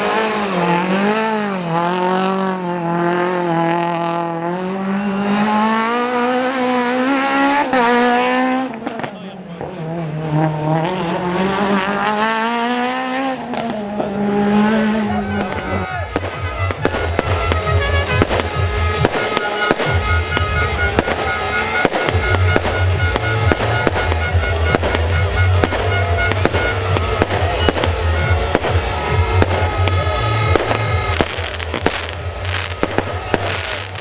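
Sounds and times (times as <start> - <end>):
sharp bangs and crackles: 14.7 - 34.0.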